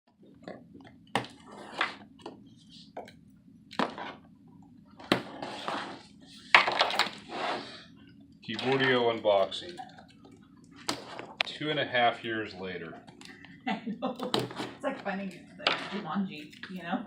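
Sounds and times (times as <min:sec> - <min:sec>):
package rustling and scraping: 0:05.2 - 0:07.7.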